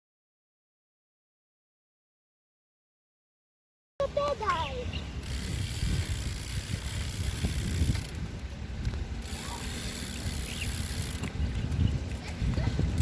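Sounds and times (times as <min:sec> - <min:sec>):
bicycle tyres rumbling: 0:04.1 - 0:13.0
wind on microphone: 0:04.6 - 0:13.0.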